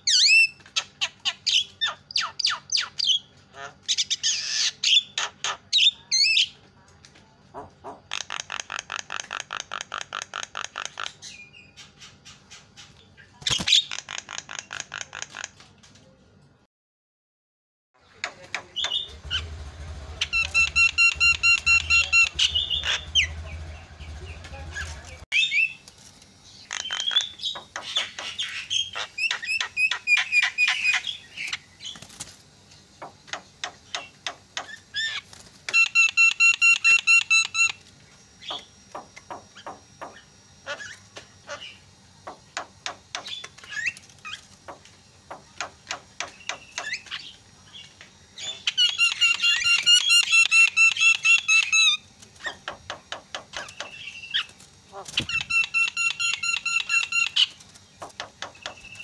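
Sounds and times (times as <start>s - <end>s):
myna clicking chatter: 13.4s - 16.0s, 18.2s - 25.2s, 26.7s - 28.4s.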